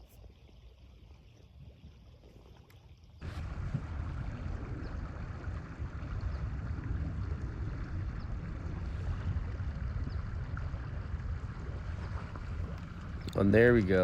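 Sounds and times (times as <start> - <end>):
steady low rushing noise: 3.2 - 14.0.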